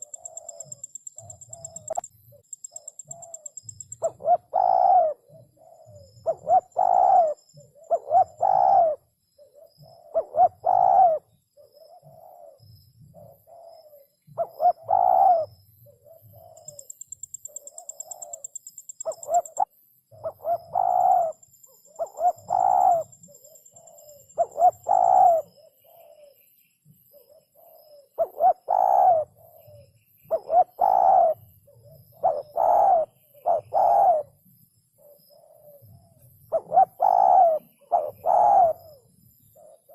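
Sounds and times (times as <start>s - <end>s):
dove cooing: 0.0s - 26.4s, 27.1s - 34.4s, 35.0s - 39.9s.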